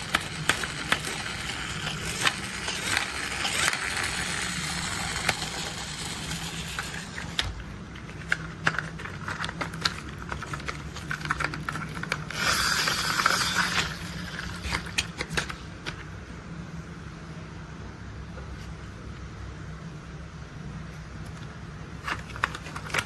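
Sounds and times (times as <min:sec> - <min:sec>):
plastic toy vehicles clicking: 0:00.0 - 0:07.5, 0:08.2 - 0:15.6
steady low hum: 0:00.0 - 0:23.0.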